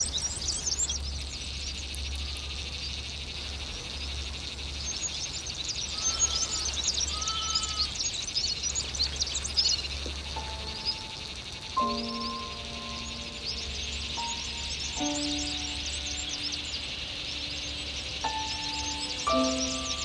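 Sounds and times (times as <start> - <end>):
songbirds twittering and chirping: 0.0 - 20.0
low whistled notes: 10.4 - 20.0.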